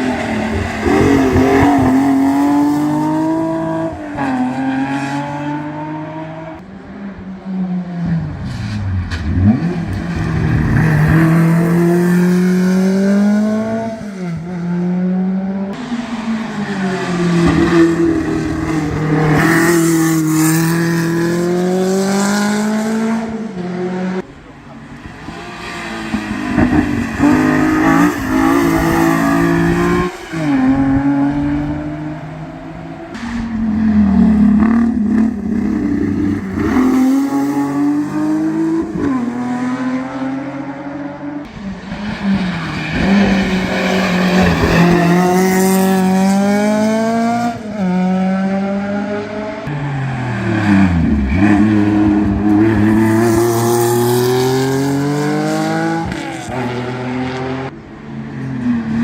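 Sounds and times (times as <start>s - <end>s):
race car engines revving hard: 0.0s - 7.3s, 8.0s - 59.0s.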